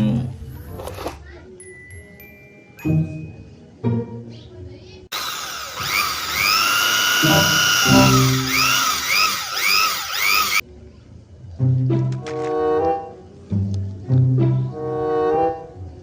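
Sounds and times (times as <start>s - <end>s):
background music: 1.5s - 4.8s, 7.2s - 8.5s, 11.4s - 16.0s
toy electric drill whirring: 5.1s - 10.6s.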